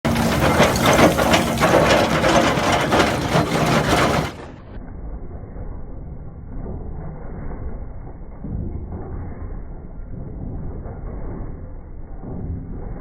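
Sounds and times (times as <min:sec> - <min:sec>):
drum cutter grinding rock: 0:00.0 - 0:04.6.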